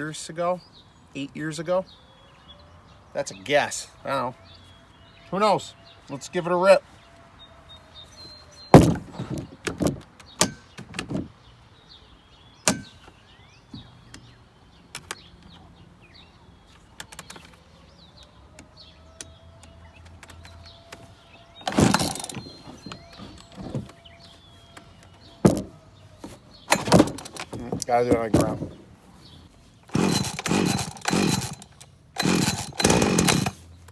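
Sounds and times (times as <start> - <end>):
chainsaw recoil starter pulled: 12.7 - 13.0, 20.0 - 24.2, 25.4 - 28.8, 29.8 - 33.7.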